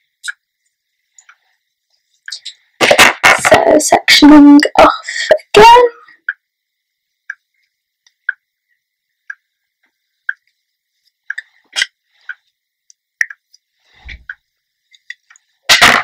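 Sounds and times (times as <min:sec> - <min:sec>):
faint regular ticking: 0:06.2 - 0:09.5.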